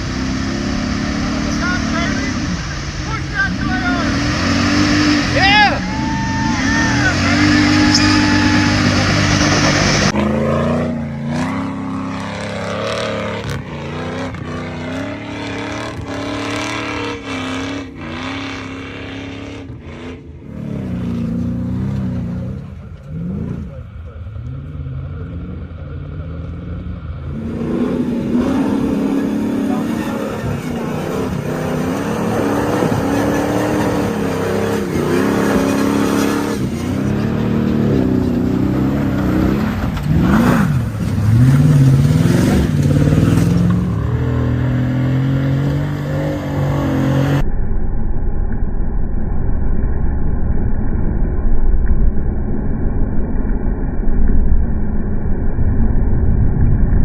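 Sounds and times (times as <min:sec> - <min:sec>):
truck engine revving: 0:00.0 - 0:47.4
muffled low engine rumble: 0:47.2 - 0:57.0.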